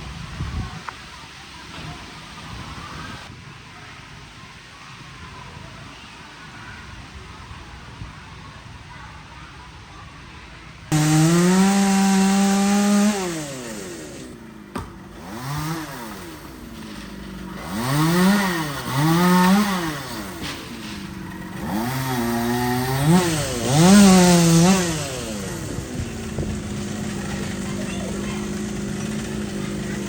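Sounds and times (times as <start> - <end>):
chainsaw revving: 10.9 - 30.0.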